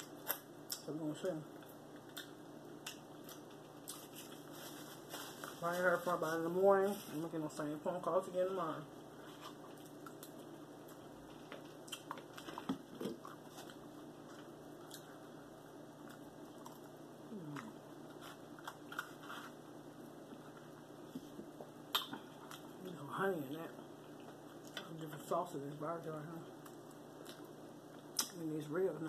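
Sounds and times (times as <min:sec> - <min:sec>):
person chewing meat: 0:09.4 - 0:15.2, 0:16.0 - 0:19.2
mouth clicks and smacks: 0:21.9 - 0:22.2.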